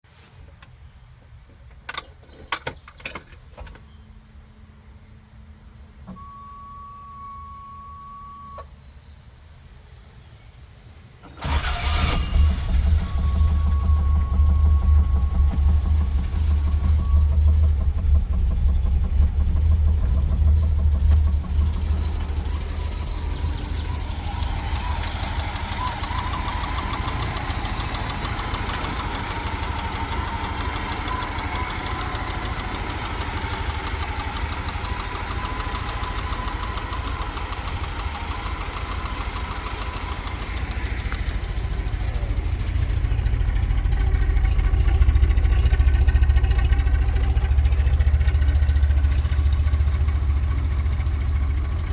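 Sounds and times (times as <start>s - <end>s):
car engine idling: 11.3s - 51.9s.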